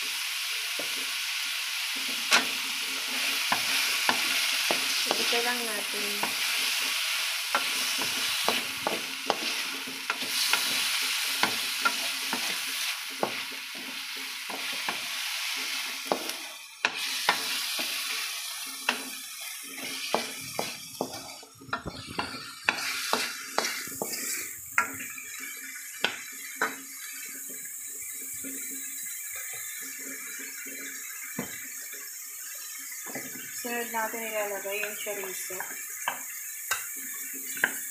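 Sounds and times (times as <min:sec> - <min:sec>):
chicken sizzling in a wok: 0:00.0 - 0:37.9
spatula scraping a pan: 0:01.9 - 0:31.2.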